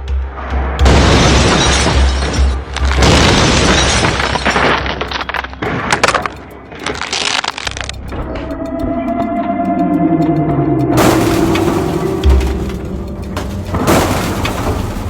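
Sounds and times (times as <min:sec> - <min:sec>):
music with pulsing bass beat: 0:00.0 - 0:11.6
glass breaking: 0:00.9 - 0:06.2, 0:11.0 - 0:15.0
car crash crunching impacts: 0:11.0 - 0:15.0.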